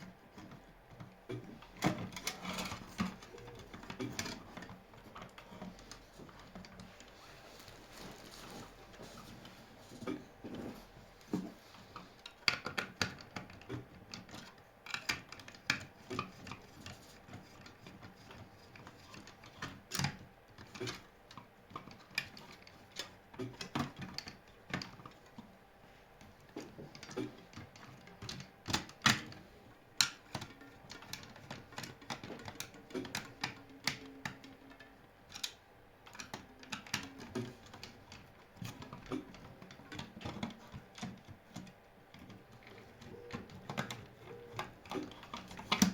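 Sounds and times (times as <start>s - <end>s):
clicks and knocks of tools: 26.2s - 45.9s.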